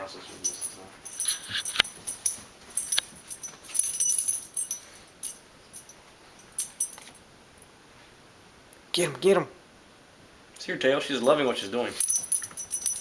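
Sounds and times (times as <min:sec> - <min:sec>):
metal collar tags jangling: 0:00.2 - 0:07.2, 0:11.2 - 0:13.0.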